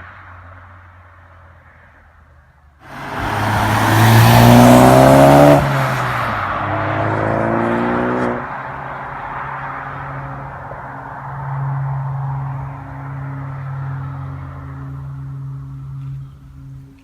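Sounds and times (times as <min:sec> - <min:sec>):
car engine accelerating: 0:02.8 - 0:08.5.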